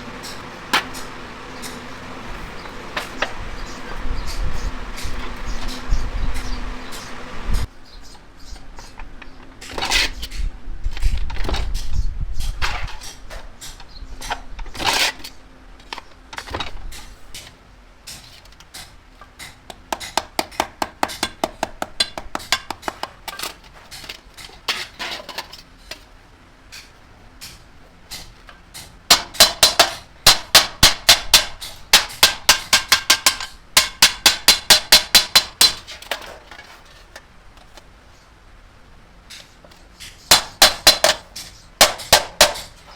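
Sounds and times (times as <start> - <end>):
hammer beating sheet metal: 0.0 - 7.2, 29.1 - 35.9, 40.3 - 42.9.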